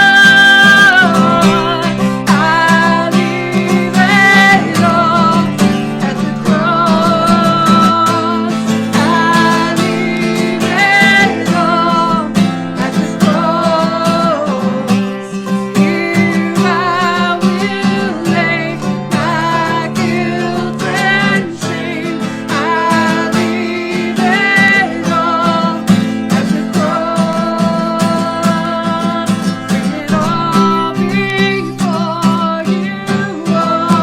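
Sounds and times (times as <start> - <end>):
person singing: 0.0 - 34.0
strummed acoustic guitar: 0.0 - 34.0.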